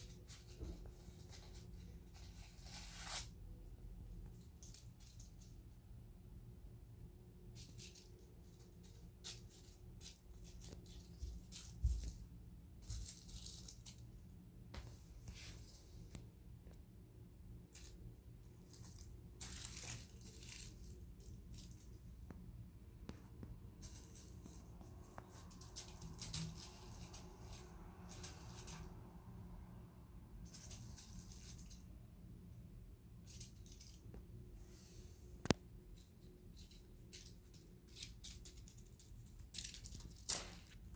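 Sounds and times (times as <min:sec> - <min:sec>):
crinkle ball toy crackling: 0:17.7 - 0:22.2, 0:37.0 - 0:40.9.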